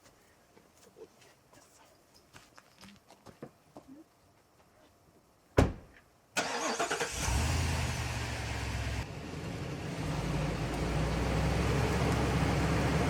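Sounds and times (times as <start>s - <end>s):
thump: 5.6s - 6.0s
truck engine starting and idling: 6.4s - 13.0s.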